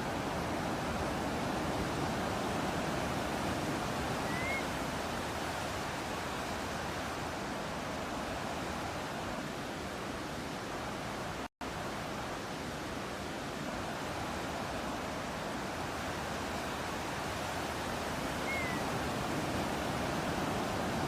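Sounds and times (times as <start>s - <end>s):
ocean surf washing: 0.0s - 21.0s
faint rising bird chirp: 4.2s - 4.8s, 18.4s - 18.9s.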